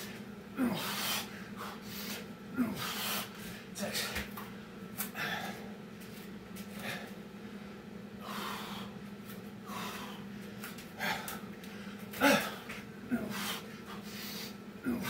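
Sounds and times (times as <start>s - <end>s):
man breathing hard: 0.0s - 4.1s, 5.0s - 5.8s, 6.7s - 7.6s, 8.2s - 9.0s, 9.6s - 15.0s.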